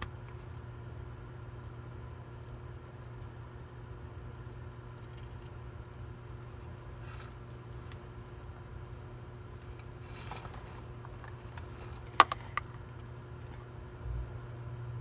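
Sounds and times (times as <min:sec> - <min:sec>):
faint scratching and ticking: 0:05.0 - 0:13.6
low hum: 0:11.4 - 0:15.0.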